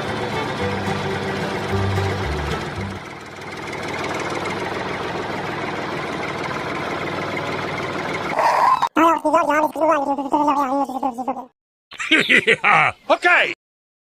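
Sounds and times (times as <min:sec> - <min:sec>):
background music: 0:00.0 - 0:03.0
tractor engine idling: 0:00.0 - 0:08.4.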